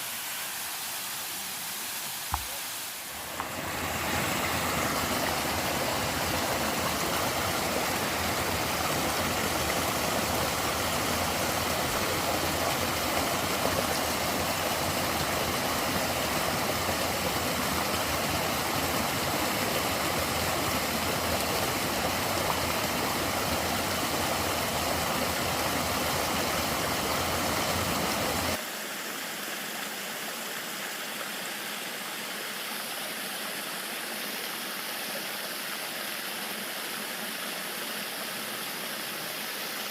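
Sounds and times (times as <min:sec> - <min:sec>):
river water rushing: 0:00.0 - 0:28.6.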